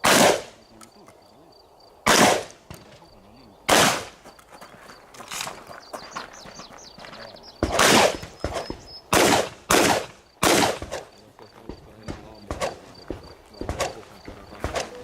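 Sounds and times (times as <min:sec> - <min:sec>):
shotgun shots with echo: 0:00.0 - 0:00.7, 0:02.0 - 0:03.1, 0:03.7 - 0:04.2, 0:07.6 - 0:15.0.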